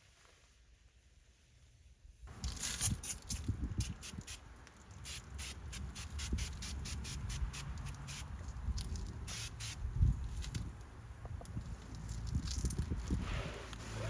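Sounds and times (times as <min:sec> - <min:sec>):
cloth wiping surfaces: 0:13.2 - 0:14.0.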